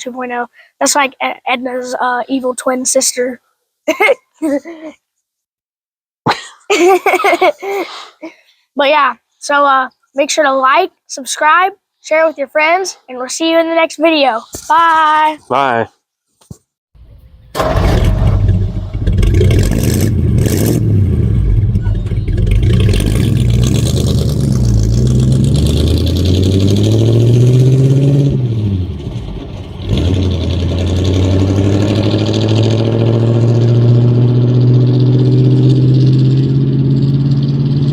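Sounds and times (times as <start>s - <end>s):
truck engine accelerating: 17.0s - 37.9s.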